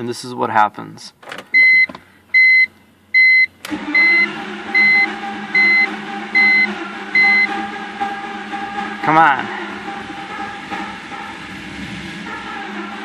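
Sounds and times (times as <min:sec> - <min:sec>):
dashboard warning chime beeping: 0:01.5 - 0:07.6
starter cranking engine: 0:03.6 - 0:05.2.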